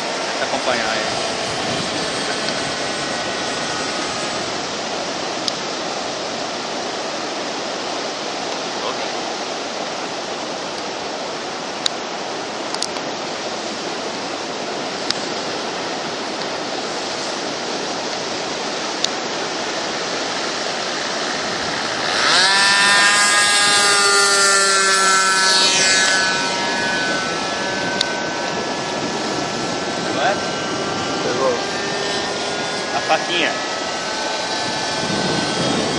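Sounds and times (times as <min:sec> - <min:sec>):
strong wind rushing: 0:00.0 - 0:07.2, 0:14.6 - 0:24.6, 0:25.5 - 0:35.9
model airplane engine passing: 0:00.0 - 0:35.9.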